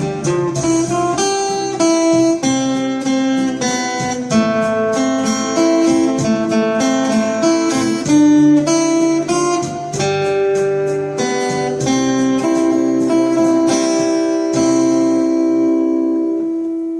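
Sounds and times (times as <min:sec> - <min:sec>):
acoustic guitar strumming: 0:00.0 - 0:16.9.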